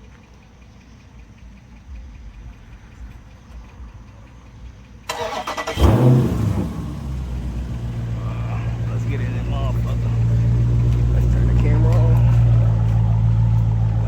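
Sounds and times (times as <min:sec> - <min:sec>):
vee eight engine idling: 0:00.0 - 0:14.0
engine catching with loud flare-up: 0:05.0 - 0:12.4
starter motor cranking: 0:05.1 - 0:07.6.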